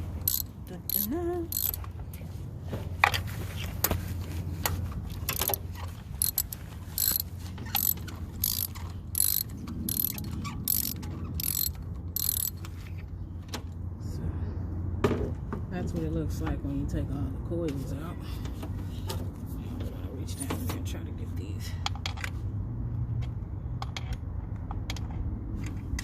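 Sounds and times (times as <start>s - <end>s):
socket ratchet wrench clicking: 0.2s - 1.8s, 5.1s - 5.6s, 6.2s - 12.6s.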